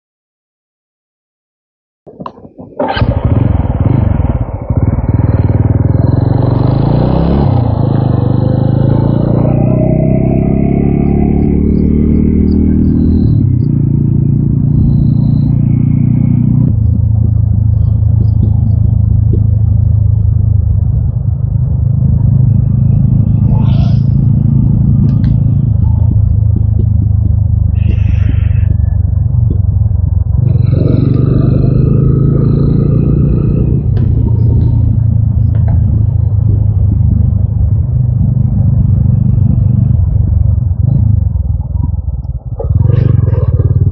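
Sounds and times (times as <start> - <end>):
motorcycle engine running: 2.1 - 43.9.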